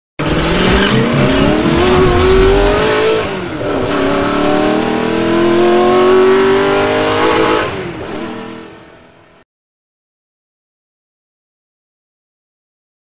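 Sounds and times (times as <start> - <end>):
car engine accelerating hard: 0.2 - 8.9.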